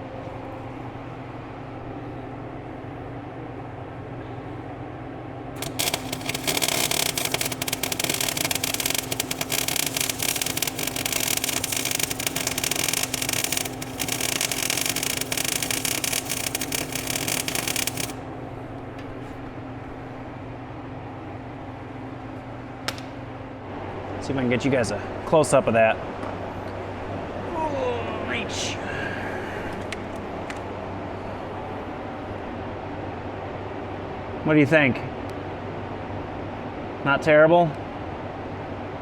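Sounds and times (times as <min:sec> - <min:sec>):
welding arc crackling and hissing: 0:05.6 - 0:18.2.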